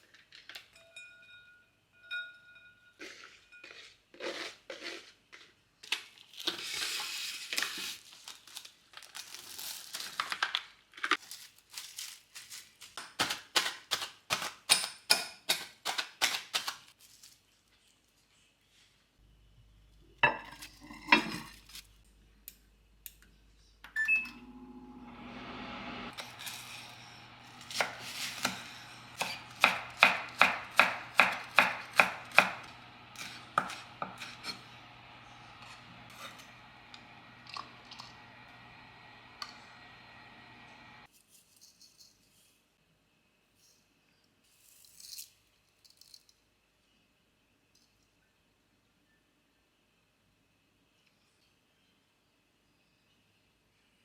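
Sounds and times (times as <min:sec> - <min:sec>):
appliance hum: 0:23.0 - 0:41.1.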